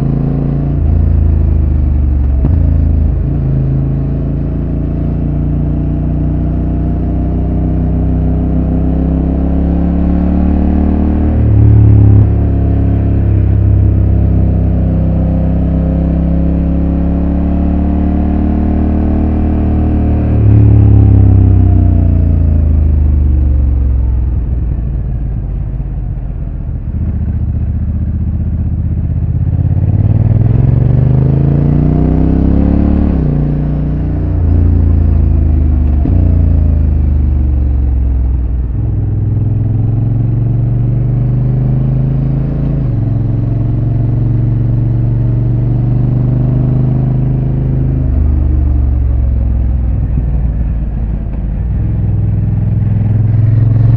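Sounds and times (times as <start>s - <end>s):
motorcycle engine revving: 0.0s - 25.6s, 26.6s - 53.9s.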